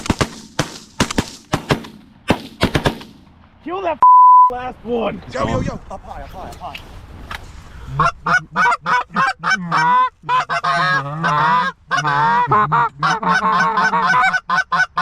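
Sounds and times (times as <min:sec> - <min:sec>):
goose honking: 0:07.9 - 0:15.0.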